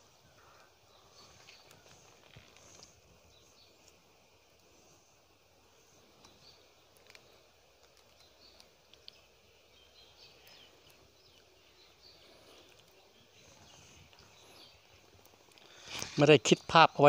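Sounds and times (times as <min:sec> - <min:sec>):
faint clicks: 0:06.2 - 0:09.3.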